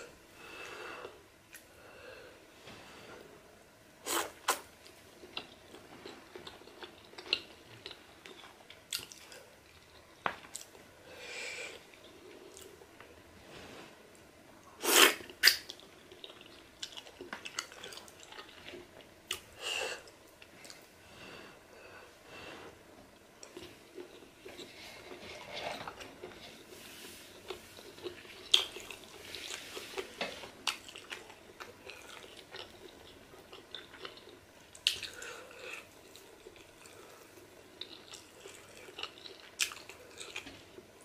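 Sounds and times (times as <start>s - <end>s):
close chewing with wet mouth noises: 15.4s - 19.4s, 27.3s - 40.9s.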